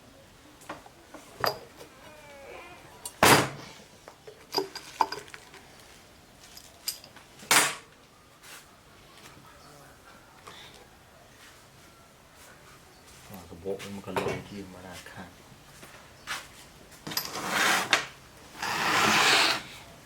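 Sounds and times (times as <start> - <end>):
metallic clinks and knocks: 1.4 - 1.9, 4.2 - 5.6, 6.5 - 7.2
metal scraping: 17.1 - 19.7.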